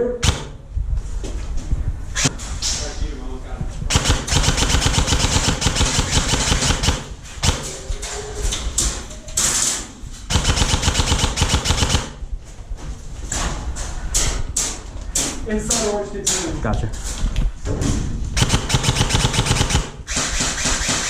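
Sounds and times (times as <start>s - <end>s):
airsoft gun firing bursts: 0.2s - 0.6s, 3.9s - 7.7s, 10.3s - 12.2s, 18.4s - 21.0s
airsoft gun single shots: 0.2s - 0.6s.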